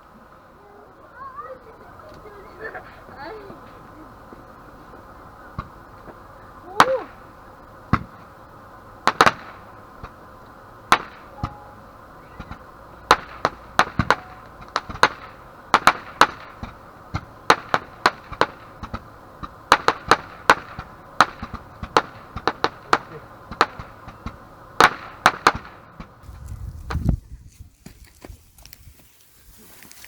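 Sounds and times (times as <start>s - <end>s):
firecrackers popping: 5.0s - 11.7s, 12.4s - 27.1s.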